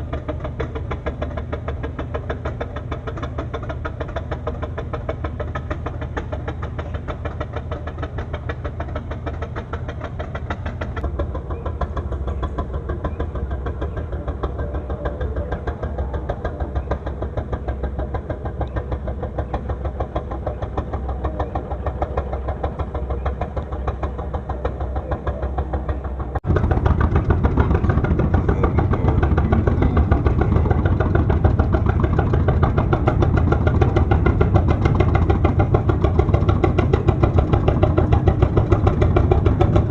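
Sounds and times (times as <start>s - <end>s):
boat engine chugging: 0.0s - 39.9s.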